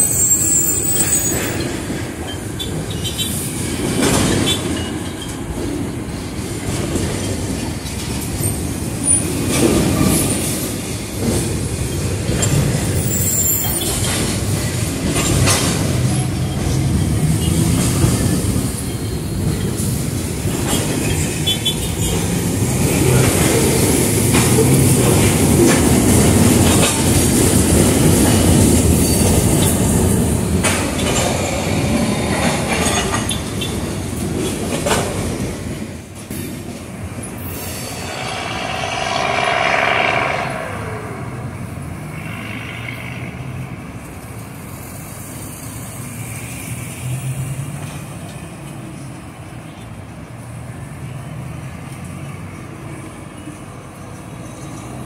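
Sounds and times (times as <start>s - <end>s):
train wheels clicking over joints: 0.9s - 37.3s
high-pitched whine: 37.4s - 43.1s.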